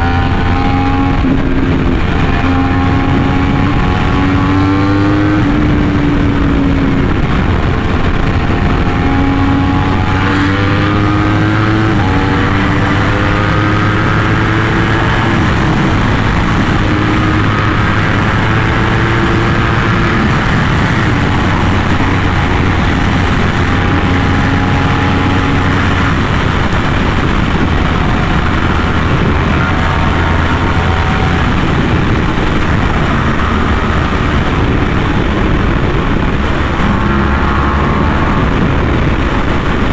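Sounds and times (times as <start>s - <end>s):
motorcycle engine running: 0.0s - 39.9s
steady rush of noise: 0.0s - 39.9s.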